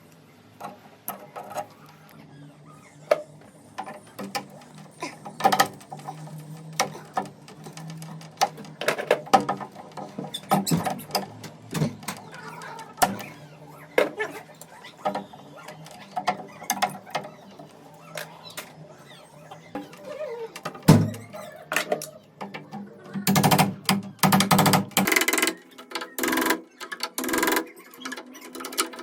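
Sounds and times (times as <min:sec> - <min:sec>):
chisel tapping and scraping wood: 0:03.8 - 0:13.4.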